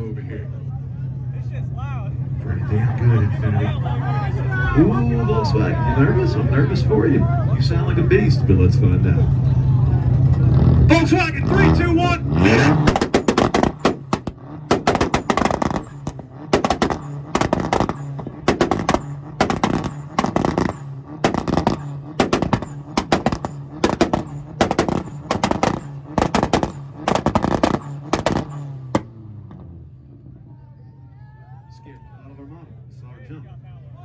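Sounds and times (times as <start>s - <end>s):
engine drone: 0.0s - 30.4s
exhaust bangs and pops: 9.3s - 29.8s.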